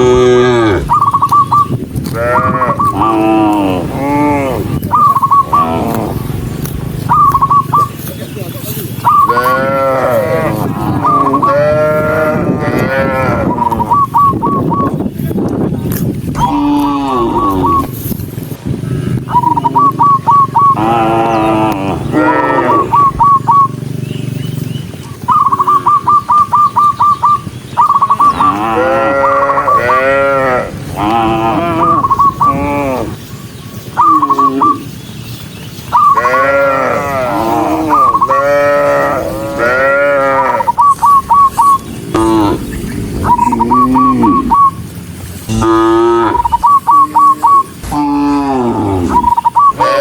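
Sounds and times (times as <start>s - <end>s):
cattle mooing: 0.0s - 1.0s, 2.0s - 4.9s, 5.5s - 6.4s, 9.2s - 14.0s, 16.4s - 18.0s, 20.7s - 23.2s, 28.2s - 33.2s, 36.1s - 40.8s, 42.1s - 44.8s, 45.5s - 50.0s
high whistle-like chirps: 40.7s - 41.9s, 43.2s - 44.8s, 49.1s - 49.8s.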